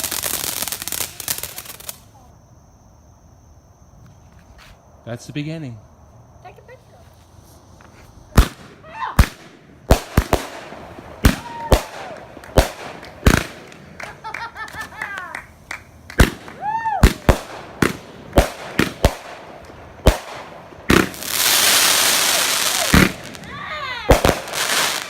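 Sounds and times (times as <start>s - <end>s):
fireworks bangs and pops: 0.0s - 2.1s, 7.8s - 25.0s
fireworks whistling: 0.0s - 2.3s, 6.6s - 25.0s.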